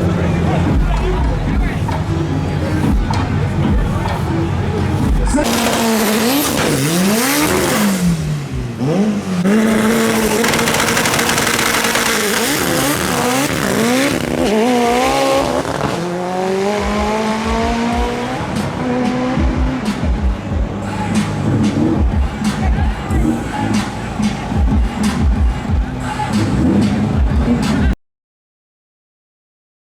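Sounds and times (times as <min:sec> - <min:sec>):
race car engine revving: 0:00.0 - 0:28.0.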